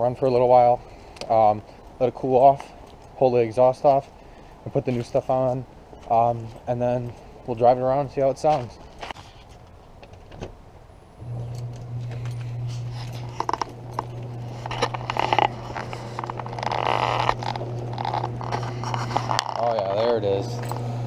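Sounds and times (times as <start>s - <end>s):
garage door opener humming: 11.2s - 21.0s.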